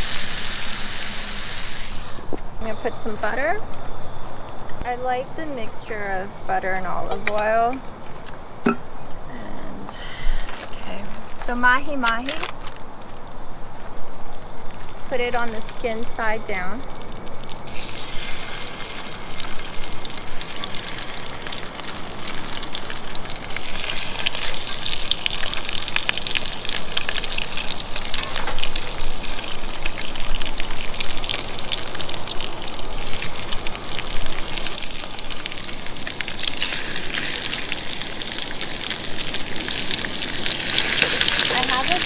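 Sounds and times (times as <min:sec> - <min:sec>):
fish frying in a pan: 0:00.0 - 0:02.3, 0:14.6 - 0:42.0.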